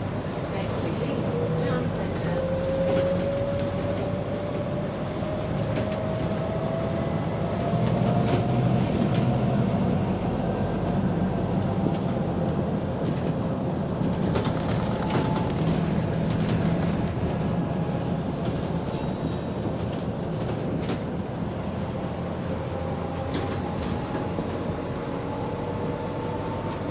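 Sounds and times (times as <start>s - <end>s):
bus engine running: 0.0s - 26.9s.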